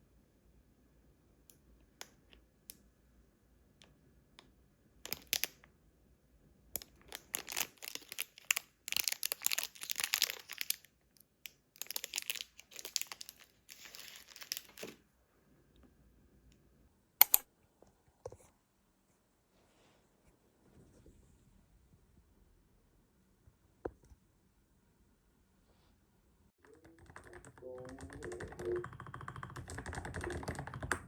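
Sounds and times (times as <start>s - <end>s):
crinkling and rustling: 5.0s - 5.6s, 6.8s - 11.2s, 11.8s - 15.0s
sharp click: 17.2s - 17.5s.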